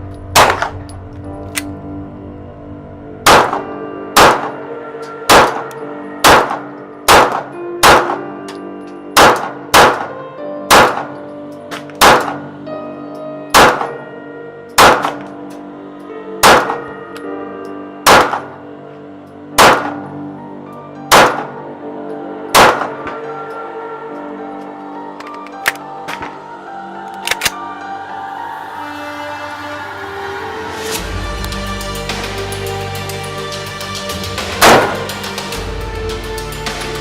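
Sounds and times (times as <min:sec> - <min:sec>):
pistol shots: 0:00.4 - 0:00.8, 0:03.3 - 0:04.6, 0:05.3 - 0:08.2, 0:09.2 - 0:11.2, 0:12.0 - 0:12.4, 0:13.6 - 0:14.0, 0:14.8 - 0:15.3, 0:16.4 - 0:16.8, 0:18.1 - 0:18.6, 0:19.6 - 0:20.0, 0:21.1 - 0:21.5, 0:22.6 - 0:23.0.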